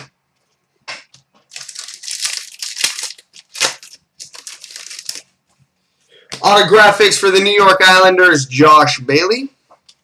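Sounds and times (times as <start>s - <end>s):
foil wrapper crinkling: 1.4s - 5.4s.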